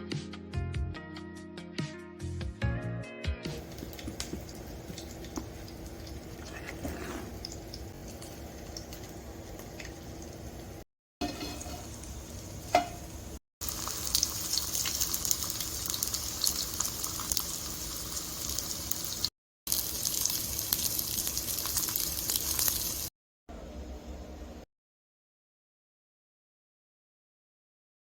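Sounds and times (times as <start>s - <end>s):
food sizzling in hot oil: 3.6s - 23.1s.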